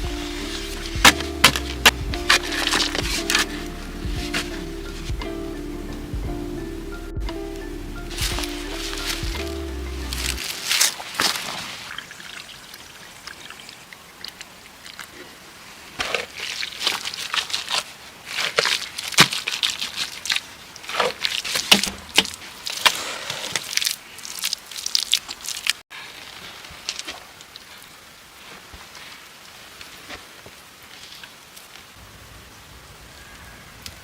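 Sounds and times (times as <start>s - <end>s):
water sloshing and splashing: 0.0s - 4.6s, 8.1s - 25.8s.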